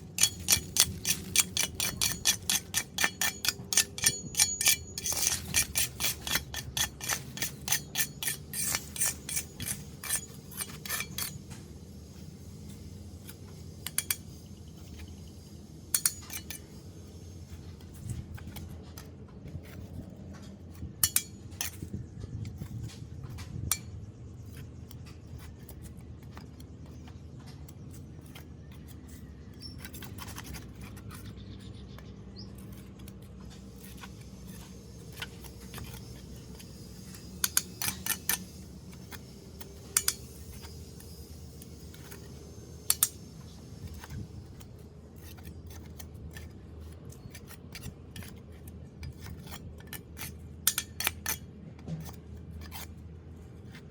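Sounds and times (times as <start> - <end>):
metal tool scraping drain grate: 0.0 - 11.5, 13.8 - 15.1, 21.0 - 21.9, 33.6 - 46.4, 47.2 - 52.9.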